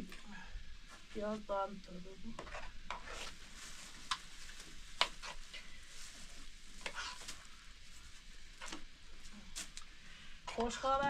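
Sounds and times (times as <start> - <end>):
utensil scraping the pan: 2.3 - 3.4, 5.0 - 5.7, 6.8 - 7.2.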